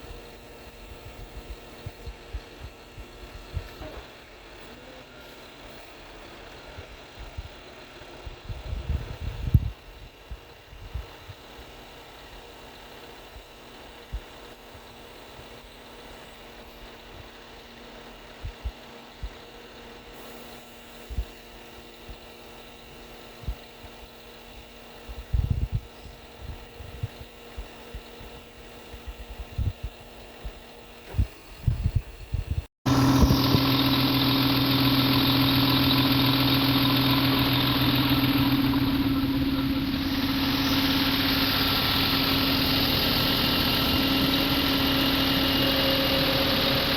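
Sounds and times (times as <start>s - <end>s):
truck engine idling: 32.9s - 46.9s.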